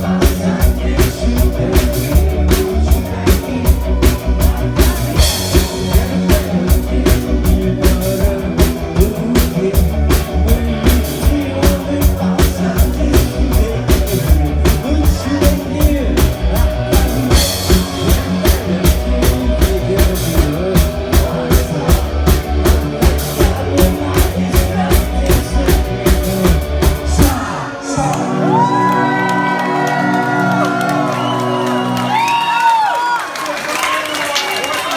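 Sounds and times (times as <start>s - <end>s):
live rock band playing: 0.0s - 32.9s
crowd whooping and cheering: 27.4s - 34.9s.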